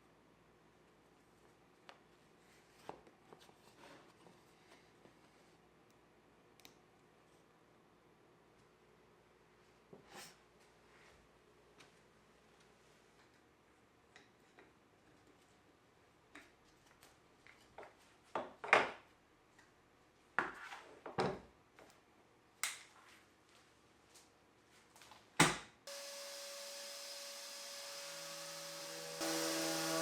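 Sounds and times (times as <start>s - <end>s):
steady hum with faint tone: 25.9s - 30.0s.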